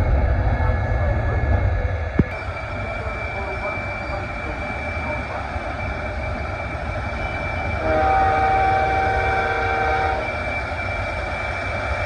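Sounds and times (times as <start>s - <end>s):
jet engine whine and rumble: 0.0s - 12.0s
multi-tone air horn blast: 7.8s - 10.2s.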